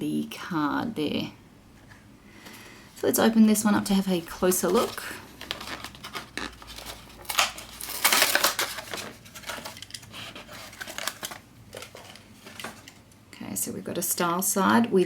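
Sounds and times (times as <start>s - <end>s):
plastic packaging crinkling and tearing: 3.0s - 13.2s.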